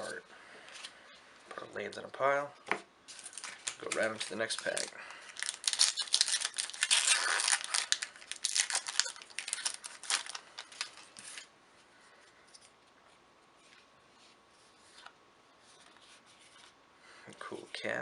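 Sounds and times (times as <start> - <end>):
foil wrapper tearing and crinkling: 3.1 - 11.4.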